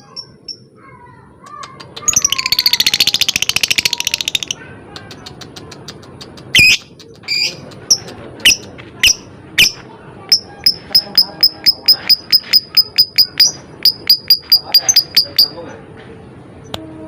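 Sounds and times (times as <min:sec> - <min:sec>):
lovebird rattling chatter-trill: 0:01.8 - 0:15.6
lovebird shrill chirps: 0:06.6 - 0:07.6, 0:08.5 - 0:15.6.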